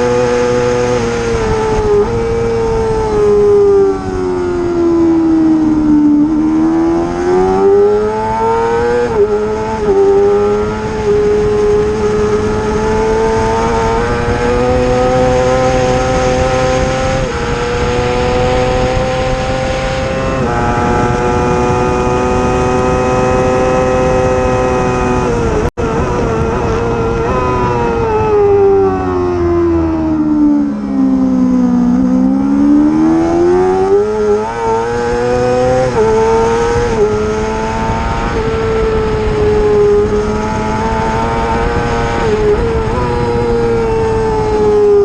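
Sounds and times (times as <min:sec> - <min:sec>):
racing motorcycle engine: 0:00.0 - 0:45.0.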